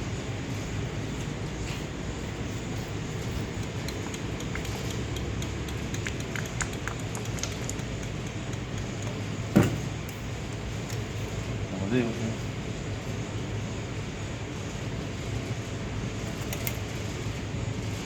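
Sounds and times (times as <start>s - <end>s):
workshop machinery hum: 0.0s - 18.0s
light clicks of tools: 3.4s - 9.3s.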